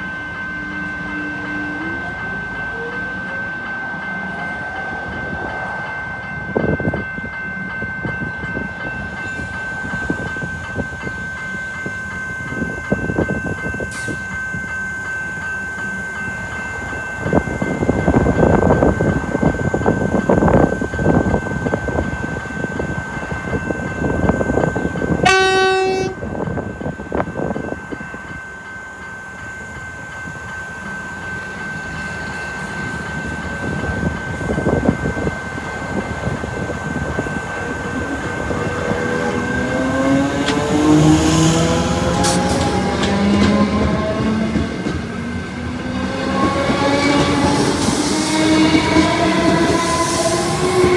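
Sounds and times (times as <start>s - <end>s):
electric train rumble: 0.0s - 50.9s
train horn blast: 25.2s - 26.4s.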